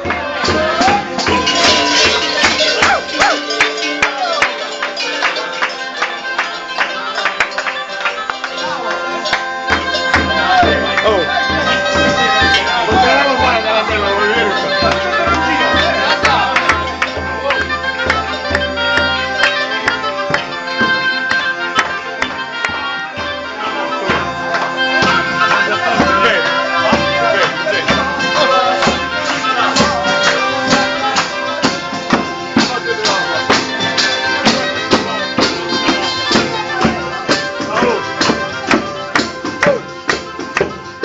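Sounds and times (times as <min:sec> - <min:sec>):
tambourine beating: 0:00.0 - 0:22.8
bagpipe folk melody: 0:00.0 - 0:41.0.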